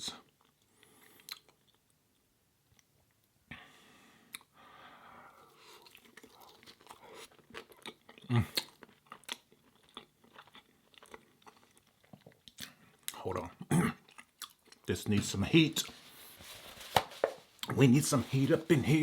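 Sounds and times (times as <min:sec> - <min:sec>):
chewing crunchy fries: 0:00.2 - 0:02.0, 0:05.5 - 0:14.9
wet mouth clicks and smacks: 0:01.2 - 0:01.6.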